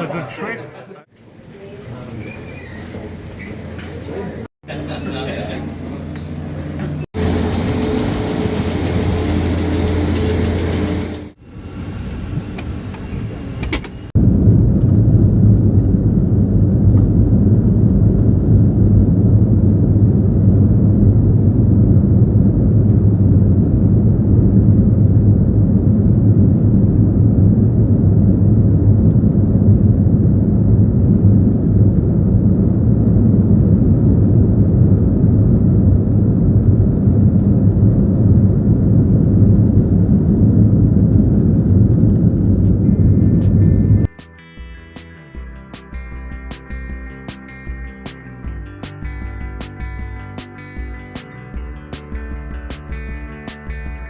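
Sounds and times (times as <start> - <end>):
airliner engines roaring in cabin: 4.7 - 44.1.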